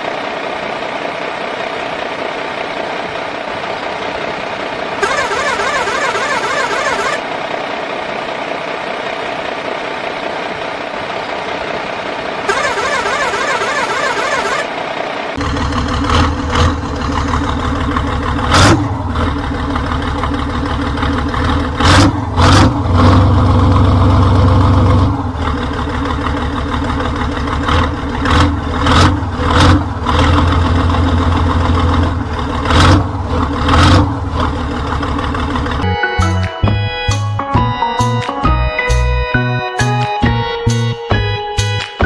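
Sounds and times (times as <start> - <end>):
toy truck motor revving: 5.0 - 7.2, 12.5 - 14.7.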